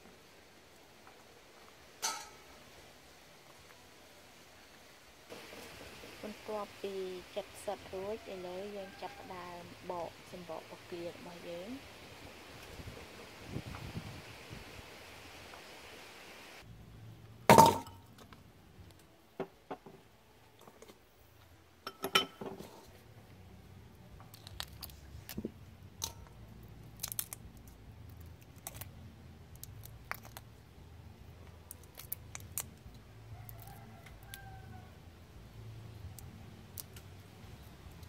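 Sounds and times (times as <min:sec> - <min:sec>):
metallic clink of steel bowl: 0:02.0 - 0:02.4
small clicks and crackles: 0:24.2 - 0:30.7, 0:31.4 - 0:34.5, 0:36.0 - 0:38.0.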